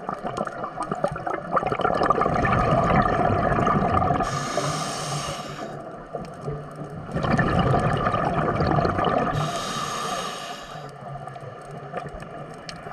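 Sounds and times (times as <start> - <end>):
ocean water surging and gurgling: 0.0 - 12.9
hiss of wind or spray: 4.2 - 5.8, 9.4 - 10.9.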